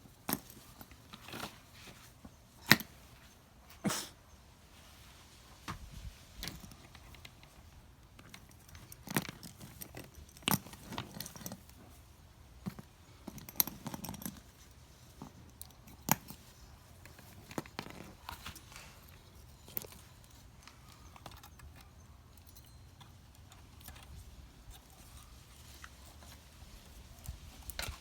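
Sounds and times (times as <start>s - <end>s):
handling clicks and rattles: 0.2s - 3.4s, 6.3s - 28.0s.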